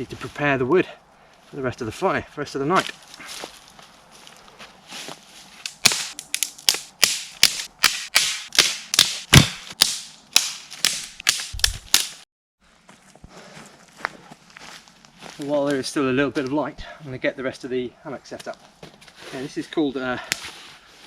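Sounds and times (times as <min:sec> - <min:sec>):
firewood cracking: 0:05.6 - 0:12.2.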